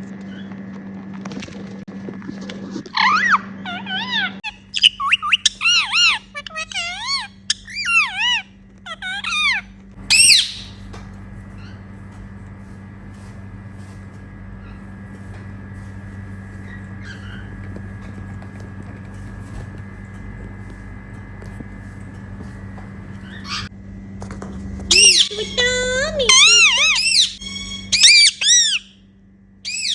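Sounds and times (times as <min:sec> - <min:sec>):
parrot harsh screech: 0:03.0 - 0:10.9, 0:23.2 - 0:23.7, 0:24.9 - 0:28.9, 0:29.7 - 0:29.9
parrots chirping and squawking: 0:03.0 - 0:23.7, 0:24.9 - 0:28.9, 0:29.7 - 0:29.9
low steady hum: 0:04.0 - 0:29.9.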